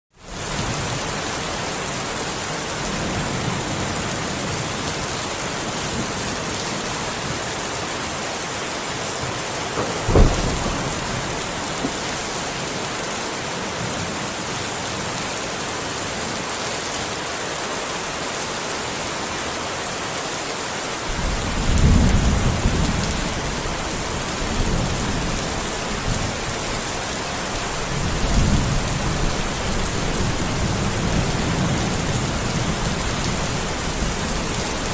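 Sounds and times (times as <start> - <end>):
steady rain falling: 0.1 - 34.9
low rolling thunder: 9.7 - 13.0, 21.1 - 34.9
sharp thunder crack: 9.8 - 12.6.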